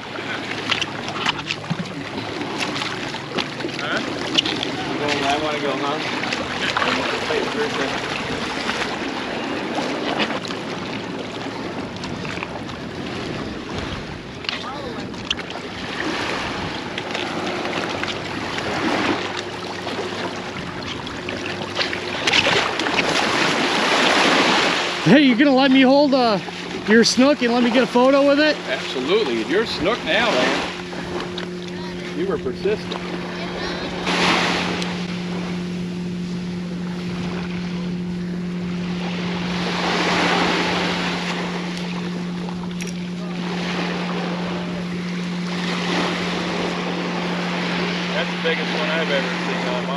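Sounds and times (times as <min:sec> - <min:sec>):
ocean waves breaking: 0:00.0 - 0:49.9
steady low hum: 0:00.0 - 0:49.9
surf washing up beach: 0:00.0 - 0:49.9
wind on microphone: 0:11.1 - 0:19.3.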